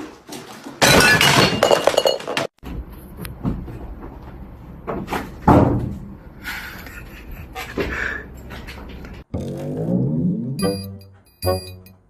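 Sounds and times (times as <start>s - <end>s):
glass clinking and clattering: 0.8s - 2.5s.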